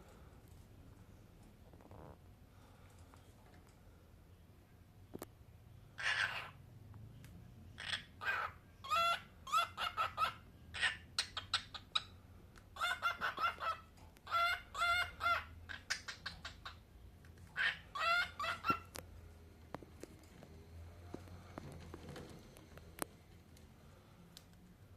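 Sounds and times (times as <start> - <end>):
cockatiel chirping: 7.8 - 12.2, 12.8 - 16.8, 17.6 - 18.9.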